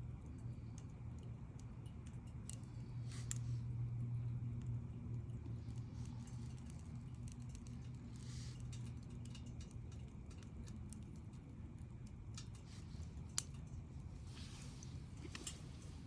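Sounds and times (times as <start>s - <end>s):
campfire crackling and popping: 4.4s - 15.6s.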